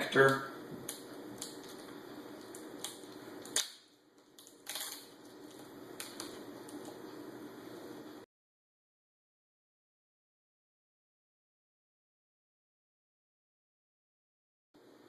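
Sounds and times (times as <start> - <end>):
foil tape crinkling and peeling: 0.2 - 7.0.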